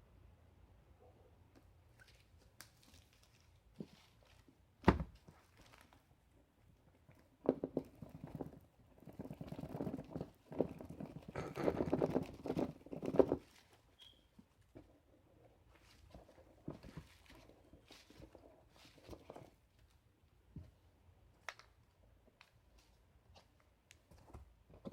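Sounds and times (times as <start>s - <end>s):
wrapping rustling and crinkling: 2.0s - 4.6s, 5.2s - 6.1s, 15.7s - 20.0s.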